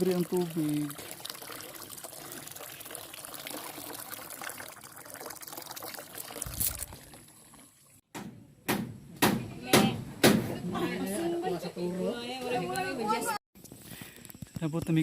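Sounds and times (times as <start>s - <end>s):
water running and trickling: 0.0s - 8.0s.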